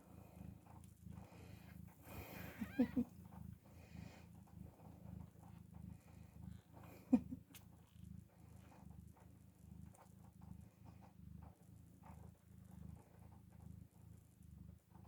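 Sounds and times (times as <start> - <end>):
cat purring: 0.0 - 15.0
faint small clicks: 7.4 - 14.3.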